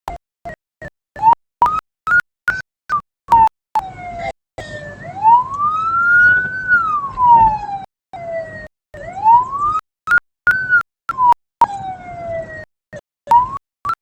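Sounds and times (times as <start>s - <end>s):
wailing siren: 3.8s - 10.8s, 11.6s - 12.7s.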